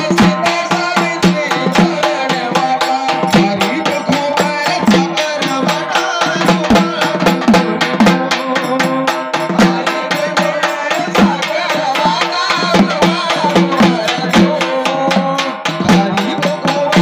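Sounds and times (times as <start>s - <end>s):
drum beat: 0.0s - 17.0s
sharp clicking percussion: 0.0s - 17.0s.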